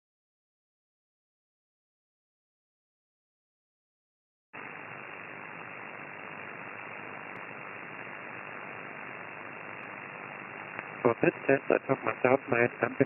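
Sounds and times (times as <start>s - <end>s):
radio static hiss: 4.6s - 13.0s.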